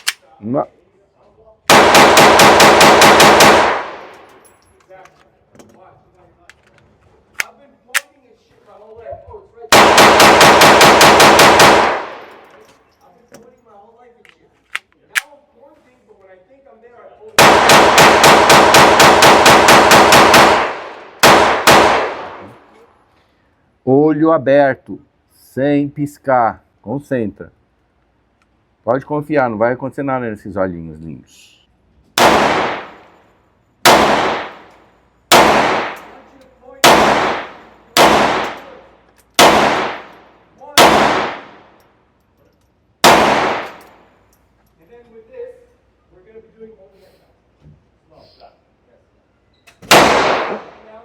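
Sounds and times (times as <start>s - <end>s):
pistol shots: 1.7s - 4.4s, 9.7s - 12.4s, 17.4s - 22.6s, 32.2s - 33.2s, 33.8s - 34.7s, 35.3s - 36.2s, 36.8s - 38.8s, 39.4s - 41.8s, 43.0s - 44.0s, 49.8s - 50.9s.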